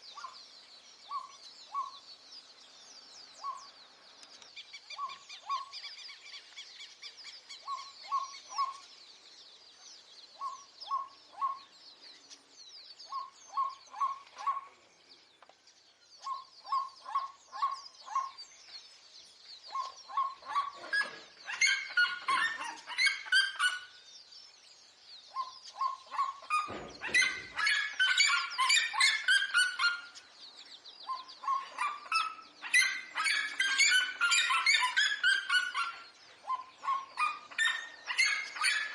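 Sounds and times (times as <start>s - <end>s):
faint high bird chirping: 0.0s - 38.9s
harsh bird chattering calls: 19.7s - 24.0s, 25.3s - 30.3s, 31.0s - 38.9s.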